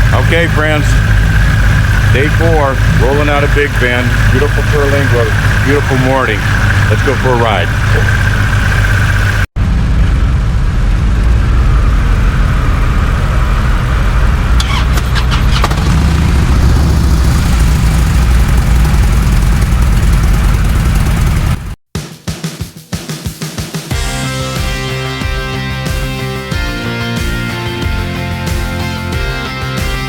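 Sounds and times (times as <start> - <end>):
motorcycle engine riding off: 0.0 - 21.8.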